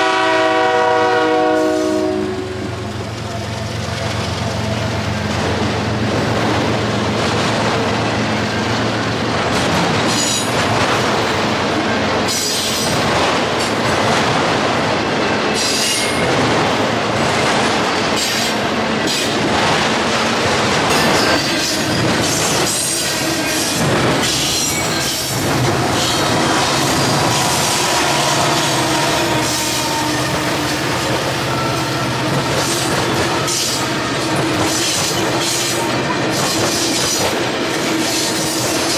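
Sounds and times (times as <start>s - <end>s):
rail cars rumbling: 0.0s - 38.9s
clickety-clack over rail joints: 2.9s - 38.9s
low locomotive drone: 16.2s - 38.7s
high-pitched wheel squeals: 24.4s - 33.9s.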